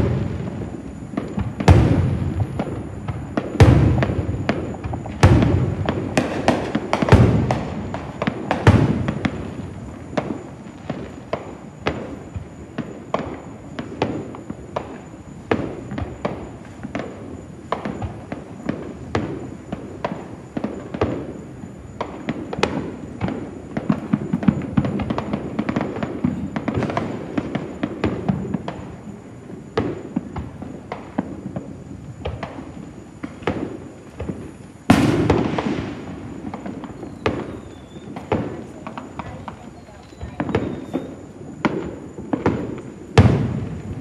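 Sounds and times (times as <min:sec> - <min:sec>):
fireworks pops and booms: 0:00.0 - 0:44.0
hissing firework burst: 0:00.0 - 0:44.0.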